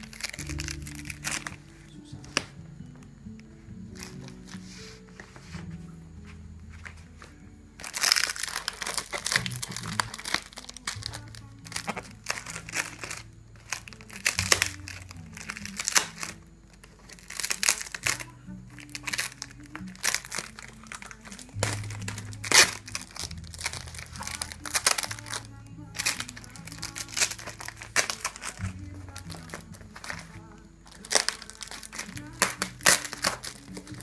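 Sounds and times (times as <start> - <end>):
packaging crinkling: 0.0 - 2.5, 3.9 - 5.3, 6.7 - 34.0
quiet background music: 0.0 - 34.0.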